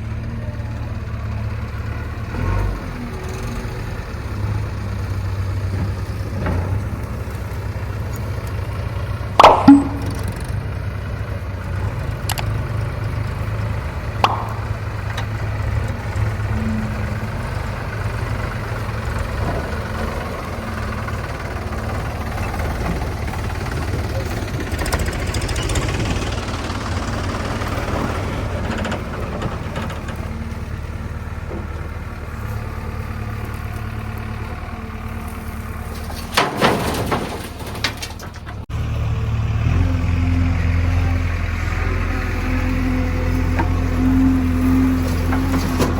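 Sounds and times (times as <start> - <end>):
heavy machinery diesel engine: 0.0 - 45.9
sharp knocks: 9.4 - 10.4, 14.2 - 15.2.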